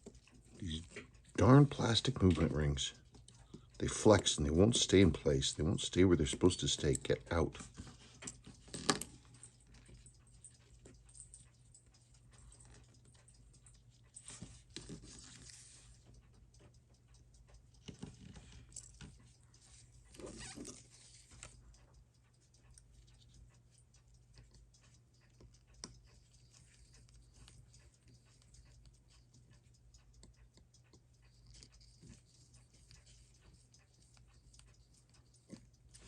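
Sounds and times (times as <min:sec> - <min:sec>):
low steady hum: 0:00.0 - 0:36.0
small clicks of tools: 0:06.0 - 0:19.3.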